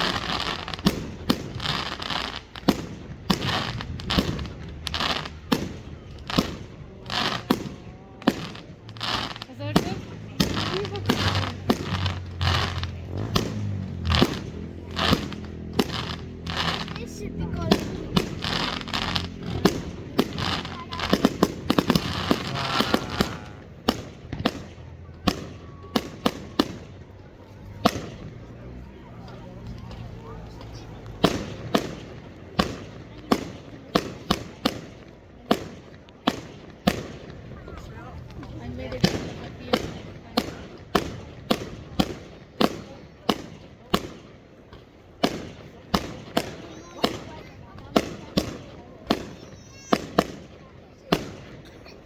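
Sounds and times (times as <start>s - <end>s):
crackling hiss: 0.0s - 24.8s
fireworks exploding: 0.0s - 52.0s.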